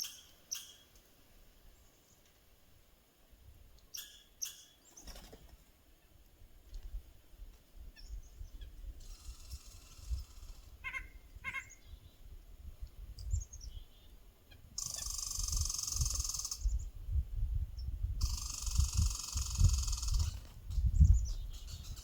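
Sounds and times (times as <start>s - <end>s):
small birds calling: 0.0s - 1.0s, 3.8s - 5.4s, 7.9s - 12.4s, 13.2s - 16.9s, 17.8s - 22.0s
wind rumble on microphone: 6.4s - 22.0s
sharp nasal bird calls: 9.0s - 12.1s, 14.8s - 16.7s.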